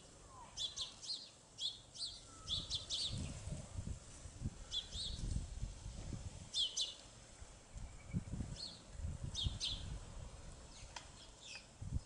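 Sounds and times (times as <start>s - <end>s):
small songbirds chirping: 0.4s - 3.6s, 4.5s - 5.4s, 6.5s - 10.0s, 10.6s - 12.0s.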